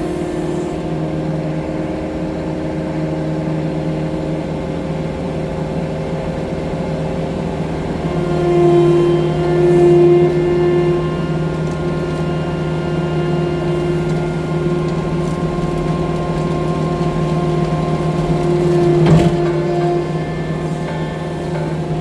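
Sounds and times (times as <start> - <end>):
diesel loader engine running: 7.3 - 22.0.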